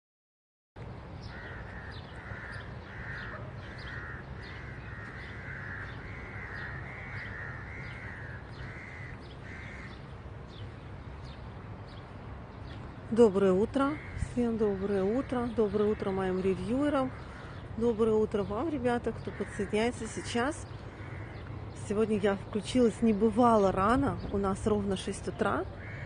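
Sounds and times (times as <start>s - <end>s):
small birds chirping: 1.2s - 26.0s
crow cawing: 1.3s - 10.0s, 21.0s - 21.5s, 25.8s - 26.0s.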